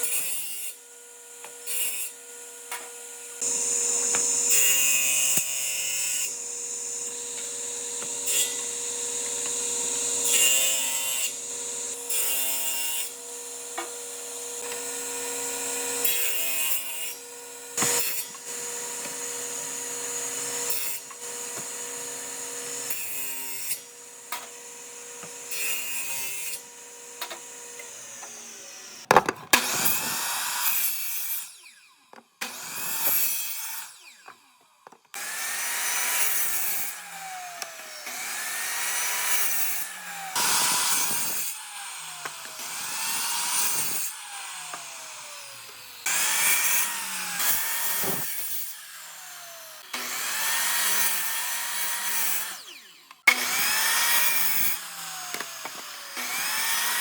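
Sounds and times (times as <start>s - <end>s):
power tool working wood: 0.0s - 57.0s.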